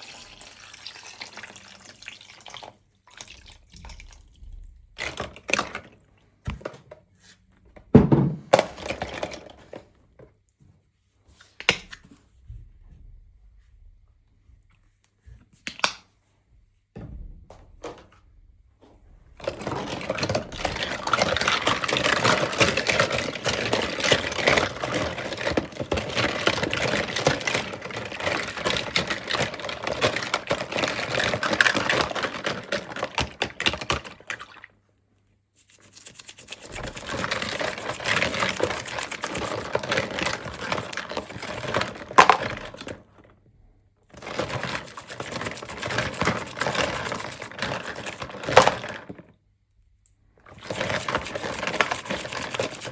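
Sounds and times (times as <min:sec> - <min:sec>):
plastic packaging crinkling: 0:19.4 - 0:34.5, 0:36.1 - 0:43.0, 0:44.2 - 0:49.1, 0:50.6 - 0:52.9.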